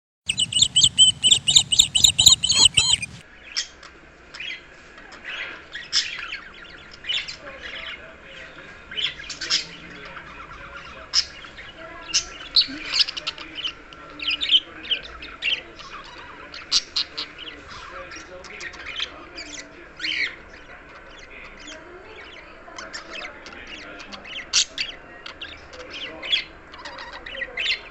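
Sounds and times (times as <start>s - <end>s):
budgerigar chirps and squawks: 0.3s - 3.2s
loud rapidly pulsing sound: 0.3s - 3.2s.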